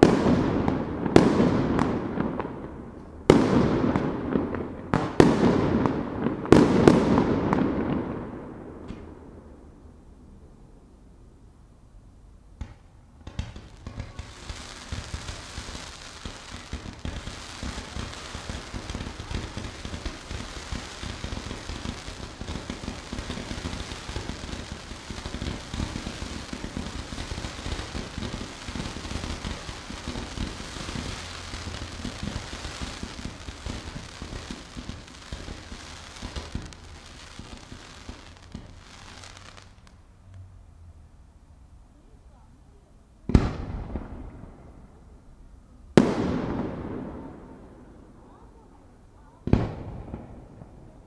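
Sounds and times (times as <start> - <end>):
fireworks crackling: 0.0 - 10.8, 12.4 - 40.9, 42.0 - 51.0.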